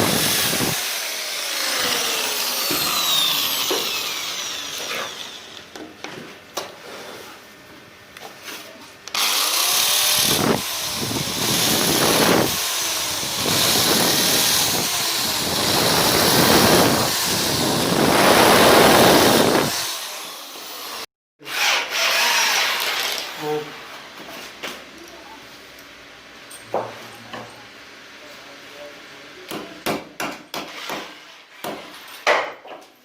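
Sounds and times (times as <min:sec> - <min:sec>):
power tool cutting wood: 0:00.0 - 0:05.7, 0:09.1 - 0:23.6.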